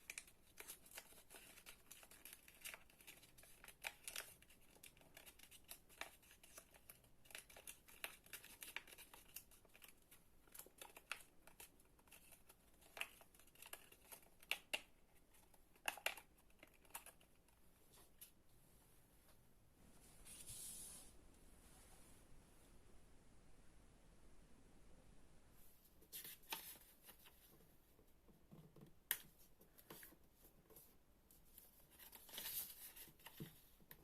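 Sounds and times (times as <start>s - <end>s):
paper crinkling and rustling: 0.0s - 18.3s, 26.1s - 27.6s, 29.8s - 34.0s.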